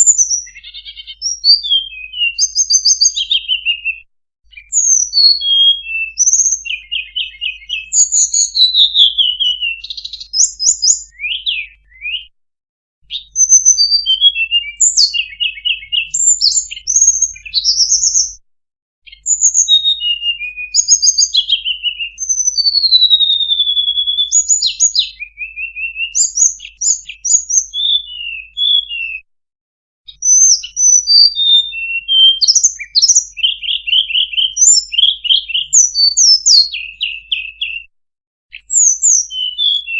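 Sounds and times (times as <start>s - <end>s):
flycatcher song: 0.0s - 3.9s, 4.5s - 12.1s, 13.2s - 18.4s, 19.1s - 23.4s, 30.1s - 37.8s.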